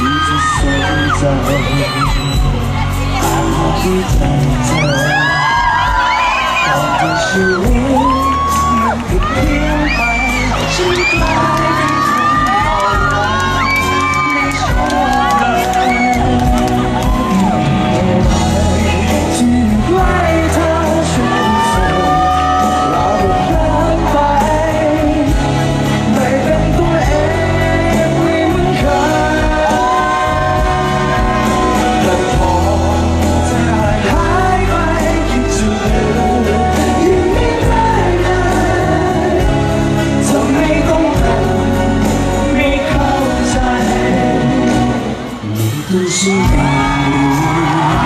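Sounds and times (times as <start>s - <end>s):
audience shouting and whooping: 0.0s - 25.4s, 27.9s - 35.7s, 42.9s - 48.0s
live pop music: 0.0s - 48.0s
person singing: 0.0s - 48.0s.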